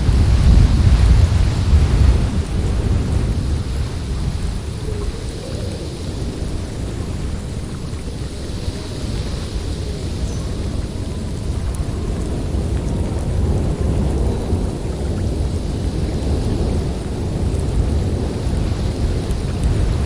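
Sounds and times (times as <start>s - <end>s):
wind blowing hard: 0.0s - 20.0s.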